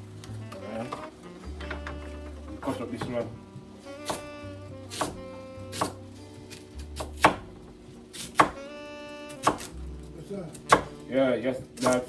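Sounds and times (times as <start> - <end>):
background music with held notes: 0.0 - 12.0
knife chopping on a board: 4.9 - 6.0, 7.0 - 7.5, 8.1 - 8.6, 9.4 - 9.7, 10.6 - 11.0, 11.8 - 12.0.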